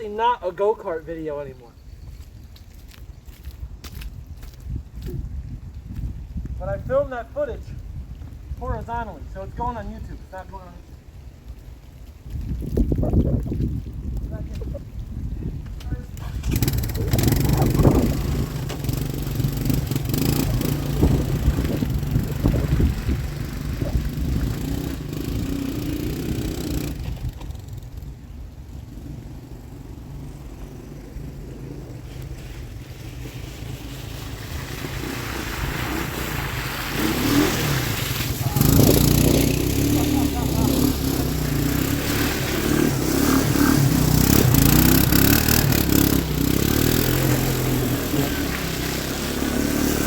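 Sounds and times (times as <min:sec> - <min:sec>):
three-wheeler engine revving: 0:14.7 - 0:50.0.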